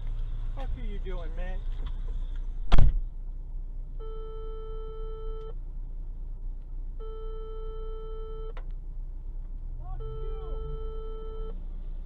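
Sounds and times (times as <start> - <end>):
long steady beeps: 4.0 - 5.6, 7.0 - 8.6, 9.8 - 11.6.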